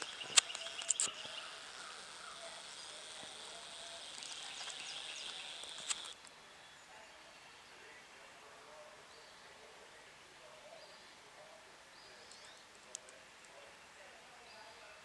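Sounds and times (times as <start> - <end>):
sharp clicks: 0.0 - 6.3
faint chirps: 0.0 - 15.0.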